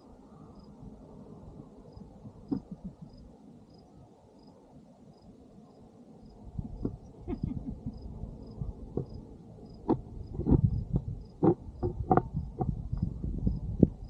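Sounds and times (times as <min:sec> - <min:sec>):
cricket chirping: 0:00.3 - 0:00.9, 0:01.7 - 0:13.8.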